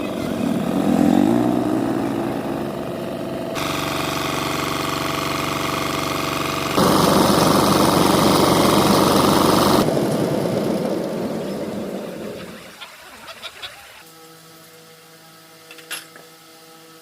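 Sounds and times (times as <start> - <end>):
engine running: 0.0 - 12.8.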